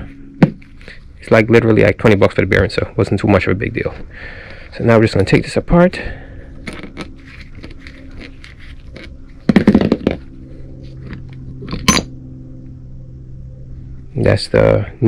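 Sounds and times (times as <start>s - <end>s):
metal parts clinking and scraping: 11.6s - 12.1s.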